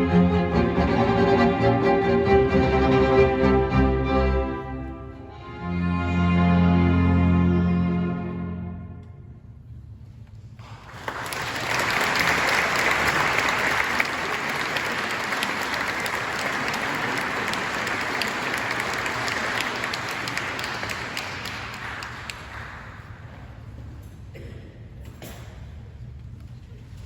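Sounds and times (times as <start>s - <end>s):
audience applauding: 10.6s - 23.4s.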